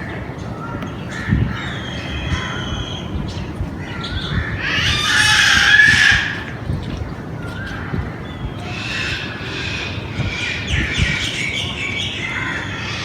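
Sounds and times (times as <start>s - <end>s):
loud harsh bird call: 3.9s - 6.5s.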